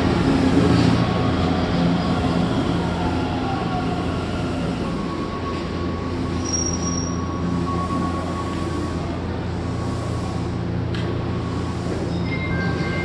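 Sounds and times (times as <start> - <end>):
train rumble: 0.0 - 13.0
brake squeal: 5.2 - 8.8, 12.0 - 13.0.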